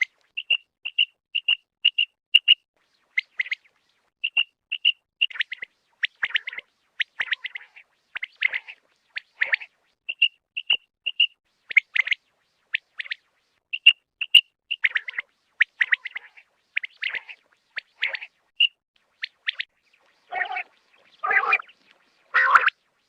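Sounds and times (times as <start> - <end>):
quail chirping calls: 0.0 - 12.2, 12.8 - 22.8
rough low bird call: 18.1 - 22.8.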